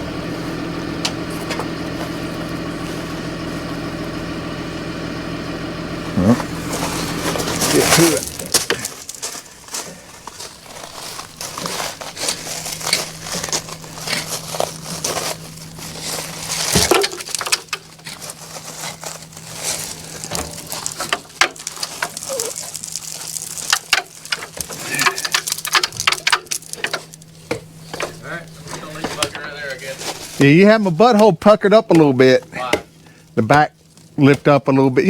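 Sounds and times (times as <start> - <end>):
knocks scrapes and crackles: 6.4 - 32.6.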